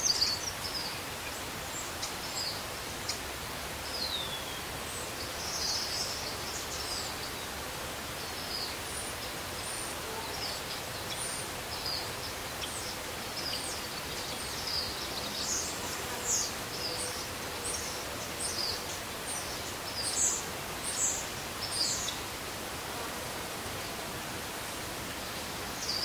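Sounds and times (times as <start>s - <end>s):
outdoor hiss: 0.0s - 26.0s
small birds chirping: 8.2s - 22.4s.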